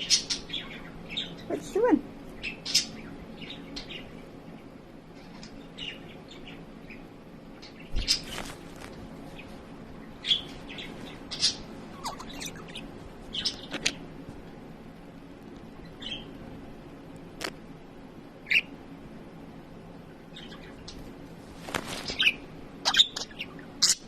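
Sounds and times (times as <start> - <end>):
budgerigar chirping: 11.4 - 13.9, 22.2 - 24.0.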